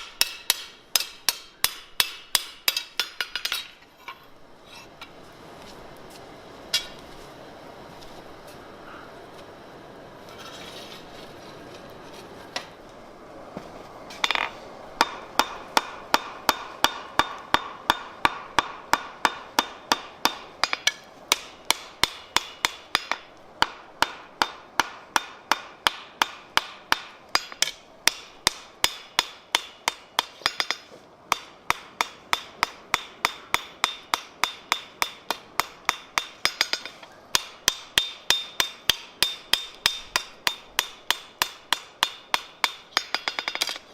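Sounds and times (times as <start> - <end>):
hammer striking steel on anvil: 0.0 - 3.8, 14.2 - 43.8.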